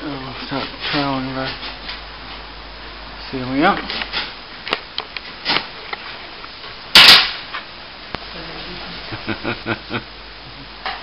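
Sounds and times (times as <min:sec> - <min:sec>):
loud sharp bang: 0:06.9 - 0:07.5.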